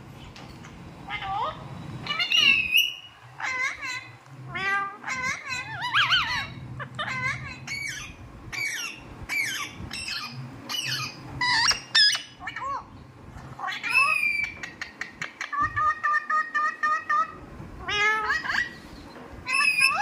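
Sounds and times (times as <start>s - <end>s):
low steady hum: 0.0s - 20.0s
parrot squawks and whistles: 2.1s - 3.8s, 13.8s - 14.6s, 19.4s - 20.0s.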